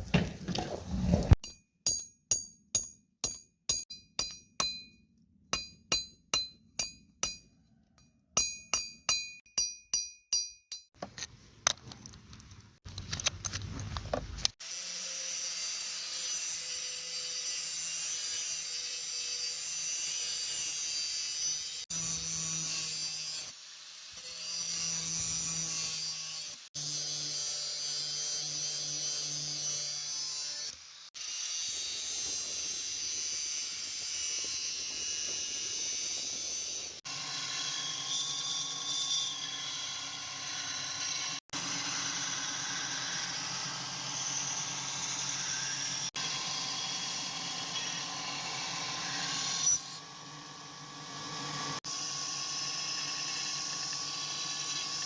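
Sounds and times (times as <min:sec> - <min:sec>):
hammer striking steel on anvil: 0:01.4 - 0:11.0
power grinder on steel: 0:14.6 - 0:55.0.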